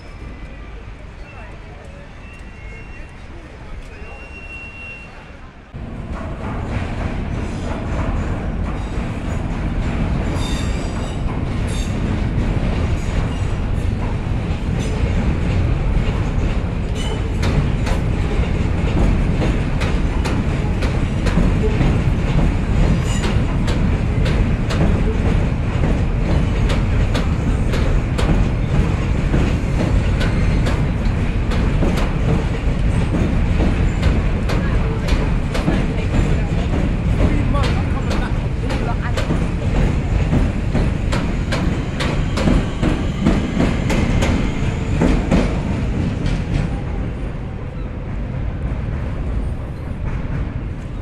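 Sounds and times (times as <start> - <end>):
train rumbling across steel bridge: 0.0 - 51.0
high wheel squeal: 1.2 - 5.5.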